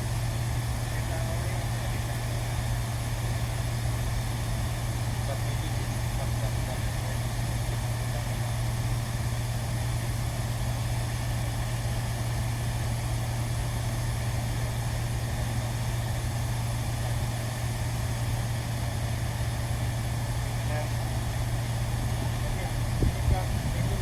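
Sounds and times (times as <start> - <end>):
low machine hum: 0.0 - 24.0
constant noisy wash: 22.2 - 24.0.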